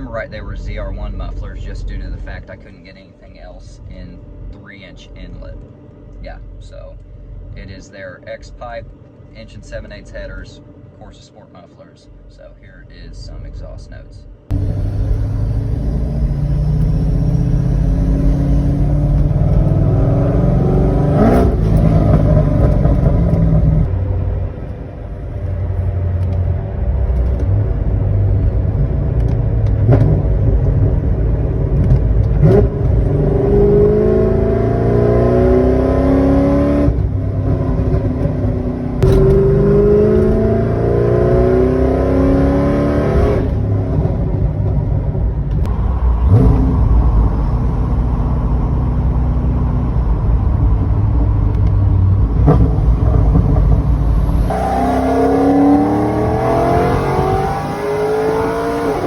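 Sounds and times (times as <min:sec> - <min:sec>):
car exhaust revving through gears: 0:14.5 - 0:24.2, 0:25.4 - 0:59.0.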